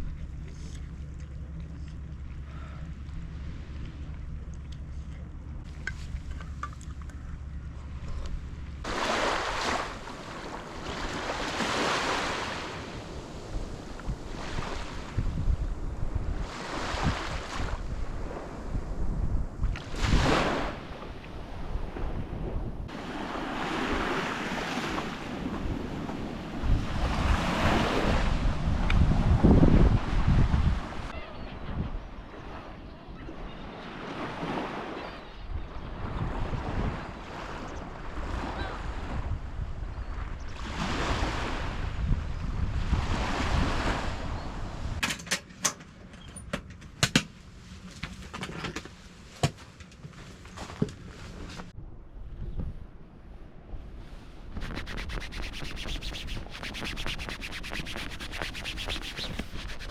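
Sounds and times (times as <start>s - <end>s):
wind gusting on microphone: 8.8s - 45.0s, 51.7s - 59.9s.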